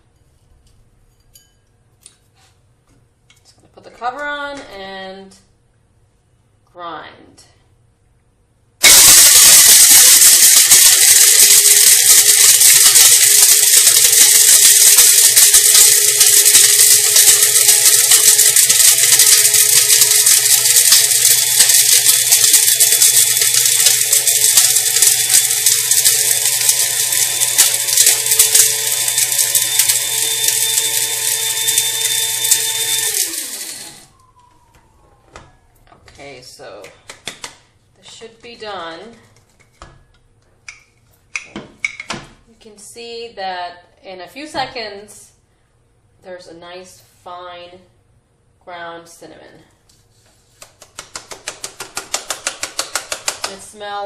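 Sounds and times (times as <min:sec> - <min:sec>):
cinnamon rattling in blade grinder: 0:08.8 - 0:34.1, 0:51.0 - 0:53.6
grinder motor hum: 0:08.8 - 0:35.5
motor spinning down whine: 0:08.8 - 0:35.9.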